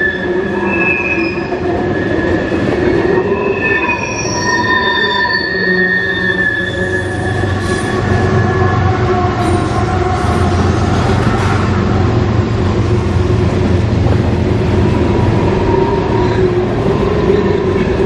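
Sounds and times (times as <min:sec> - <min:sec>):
train wheels squealing: 0:00.0 - 0:11.6, 0:15.2 - 0:18.0
diesel locomotive engine rumble: 0:00.0 - 0:18.0.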